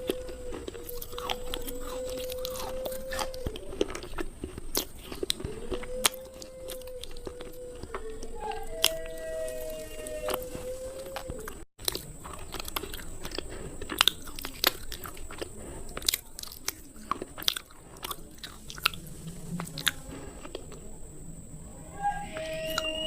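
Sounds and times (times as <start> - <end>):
slate pencils being chewed: 0.0 - 21.1, 22.1 - 23.0
faint high whine: 18.9 - 23.0.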